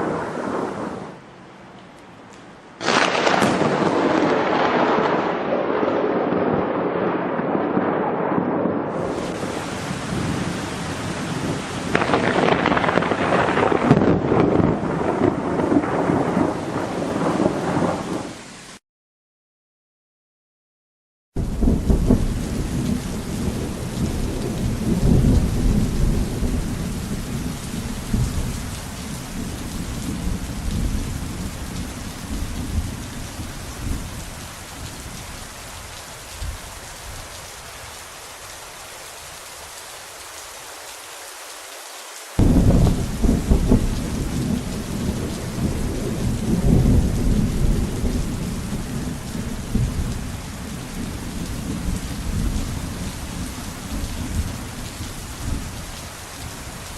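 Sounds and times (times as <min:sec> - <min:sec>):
heavy rain: 0:00.0 - 0:18.8, 0:21.4 - 0:56.9
rolling thunder: 0:02.8 - 0:18.3, 0:21.4 - 0:35.1, 0:42.4 - 0:56.9.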